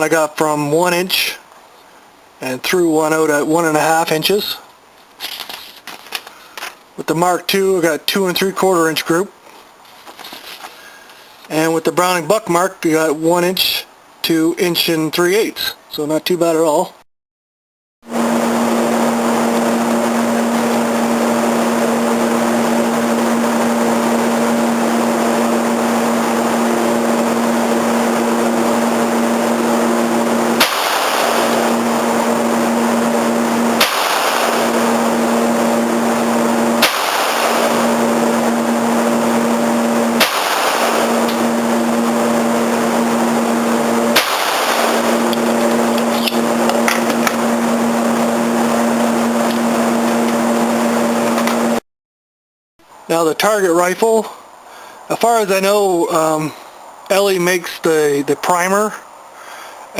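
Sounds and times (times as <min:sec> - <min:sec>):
loud droning hum: 0:18.0 - 0:51.8
pistol shots: 0:30.6 - 0:31.7, 0:33.8 - 0:34.7, 0:36.8 - 0:37.9, 0:40.2 - 0:41.1, 0:44.2 - 0:45.0.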